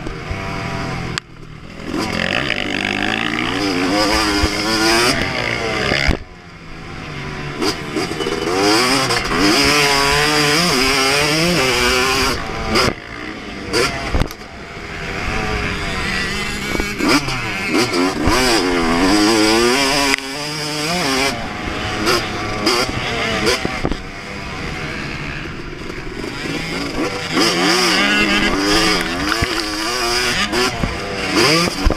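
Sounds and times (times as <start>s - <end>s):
motocross engine revving: 0.2s - 31.9s.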